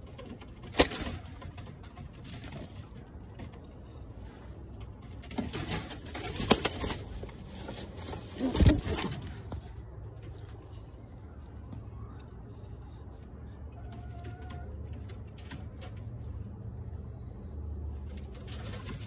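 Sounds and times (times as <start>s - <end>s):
pigeons cooing: 5.7s - 9.6s.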